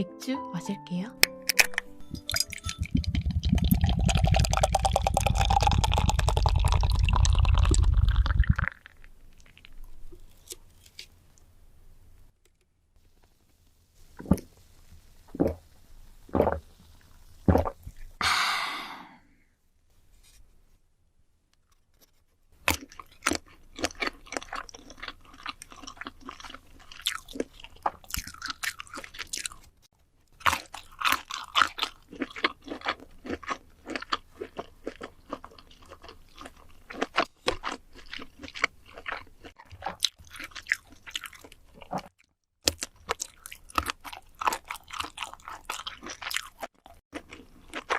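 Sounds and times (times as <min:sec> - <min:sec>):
crunching bites and wet chewing: 0:22.6 - 0:47.9.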